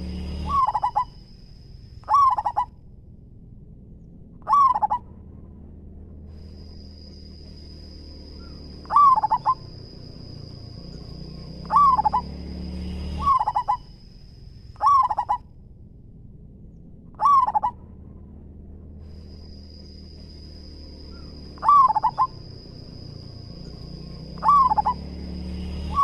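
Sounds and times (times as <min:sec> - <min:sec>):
dove cooing: 0:00.0 - 0:01.2, 0:02.0 - 0:02.7, 0:04.4 - 0:05.0, 0:08.4 - 0:09.9, 0:11.5 - 0:12.4, 0:13.2 - 0:13.9, 0:14.8 - 0:15.4, 0:17.2 - 0:17.8, 0:21.2 - 0:23.1, 0:24.3 - 0:25.1.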